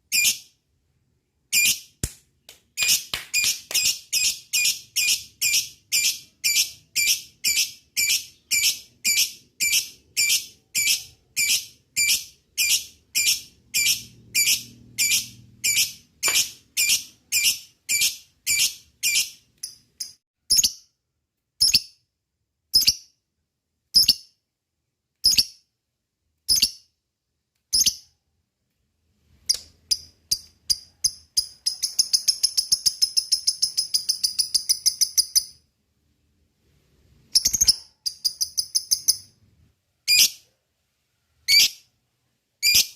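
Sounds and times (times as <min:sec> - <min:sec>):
lovebird chirping: 0:00.0 - 0:00.6, 0:01.5 - 0:02.0, 0:02.8 - 0:20.9, 0:27.7 - 0:28.1, 0:29.4 - 0:35.7, 0:37.2 - 0:39.4, 0:40.0 - 0:40.5, 0:41.4 - 0:41.9, 0:42.6 - 0:42.9.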